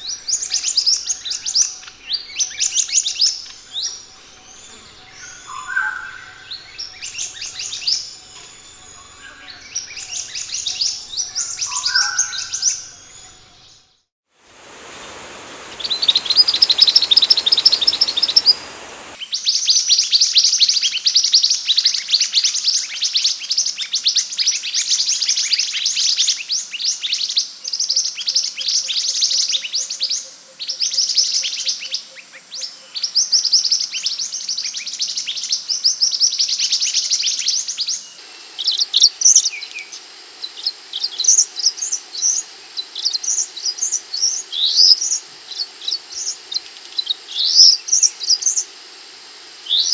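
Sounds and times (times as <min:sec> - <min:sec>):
background hiss: 0:00.0 - 0:13.7, 0:14.3 - 0:19.6, 0:30.8 - 0:49.9
bird song of high chirps: 0:00.0 - 0:19.3.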